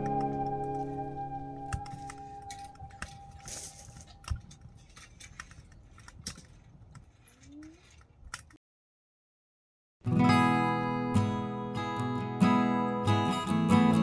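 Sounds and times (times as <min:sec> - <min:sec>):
strummed acoustic guitar music: 0:10.0 - 0:14.0.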